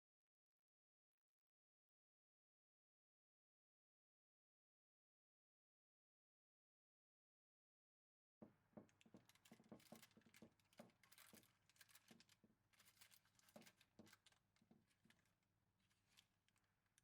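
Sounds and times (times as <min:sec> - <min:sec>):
faint clicks and rustles: 0:08.5 - 0:17.0.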